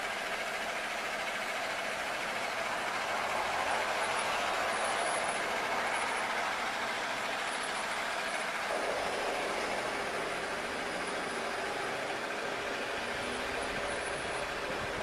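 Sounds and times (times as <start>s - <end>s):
road traffic rushing: 0.0s - 15.0s.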